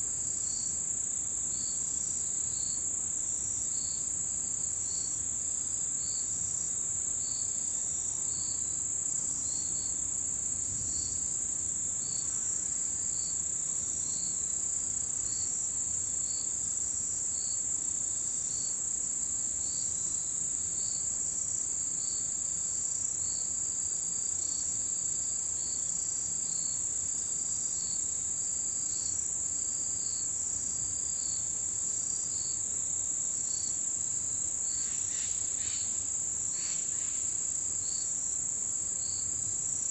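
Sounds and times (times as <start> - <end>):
insect chirps: 0.1 - 39.9
insect high steady trill: 22.8 - 39.9.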